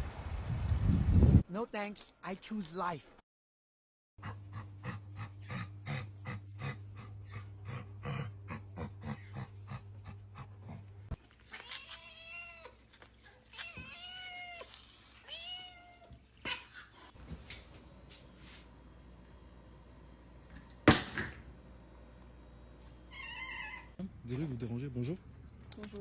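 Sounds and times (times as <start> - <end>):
steady low hum: 4.2 - 11.3, 17.2 - 23.2
cat meowing: 23.1 - 23.9.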